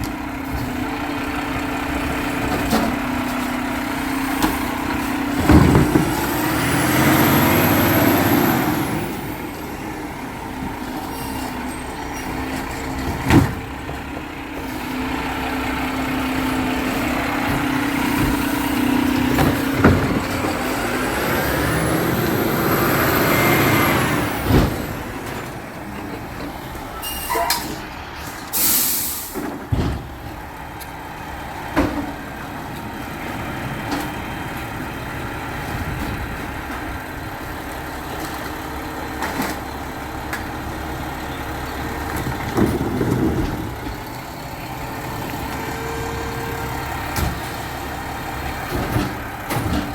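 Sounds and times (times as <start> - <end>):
garbage truck engine revving: 0.0 - 49.9
air brakes hissing: 11.0 - 12.5, 27.0 - 29.6.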